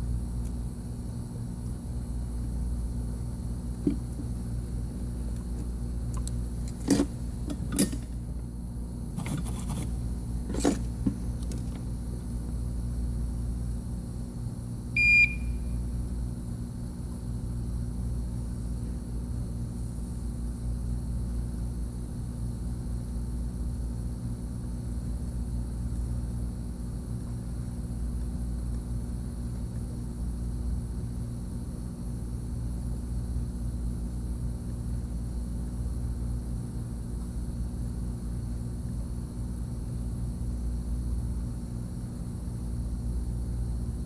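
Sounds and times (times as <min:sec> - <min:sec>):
equipment hum: 0:00.0 - 0:16.2.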